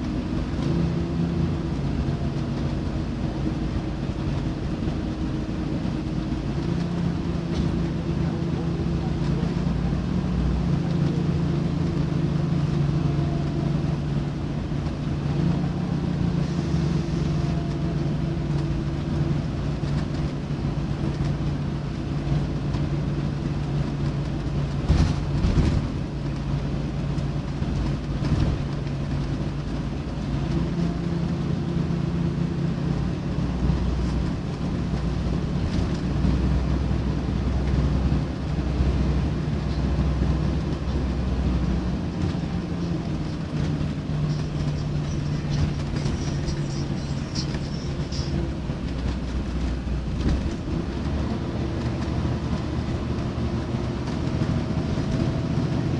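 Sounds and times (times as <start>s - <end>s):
bus diesel engine running: 0.0s - 55.9s.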